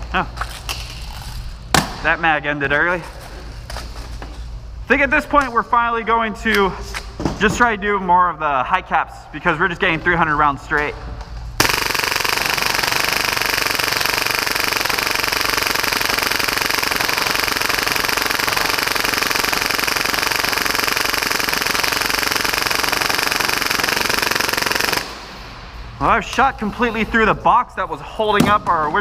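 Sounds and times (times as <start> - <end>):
airsoft pistol full-auto burst: 11.6 - 25.3.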